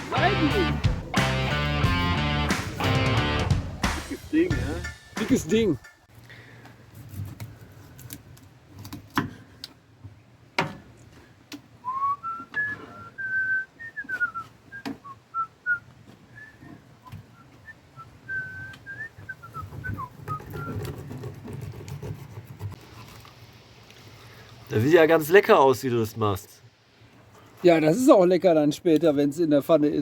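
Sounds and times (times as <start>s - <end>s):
person whistling a slow tune: 11.8s - 15.8s, 16.4s - 20.7s.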